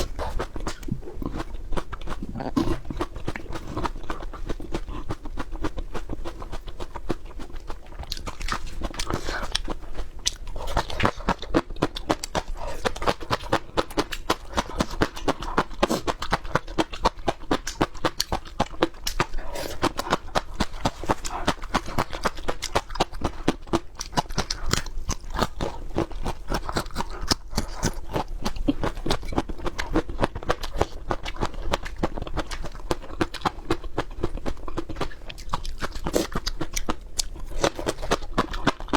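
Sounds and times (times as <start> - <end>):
crunchy chewing of peppers: 0.0 - 38.9.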